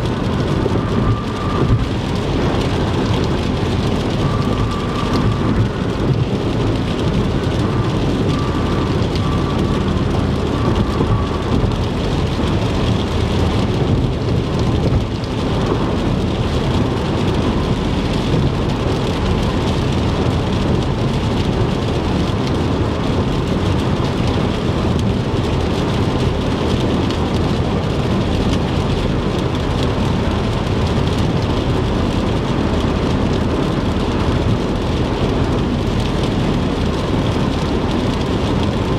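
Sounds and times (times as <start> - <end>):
heavy rain on car: 0.0 - 38.9
low road rumble: 0.0 - 38.9
tyre noise on wet road: 0.0 - 38.9.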